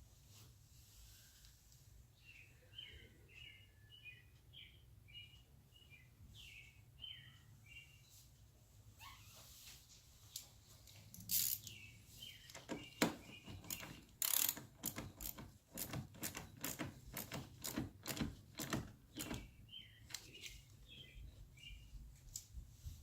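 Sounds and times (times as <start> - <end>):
bird chirping: 2.2 - 8.2, 11.3 - 15.4, 18.6 - 22.0
socket ratchet clicking: 11.3 - 11.7, 12.5 - 19.4.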